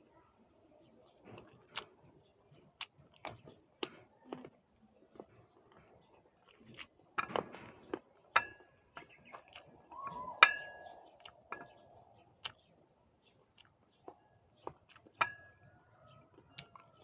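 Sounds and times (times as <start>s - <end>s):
crunchy fruit being chewed: 1.2s - 17.0s
clinks on a dish: 8.4s - 8.7s, 15.2s - 15.6s.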